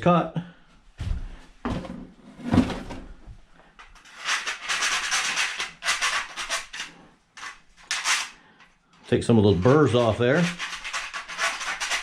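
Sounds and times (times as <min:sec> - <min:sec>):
scraping on metal: 0:09.0 - 0:12.0.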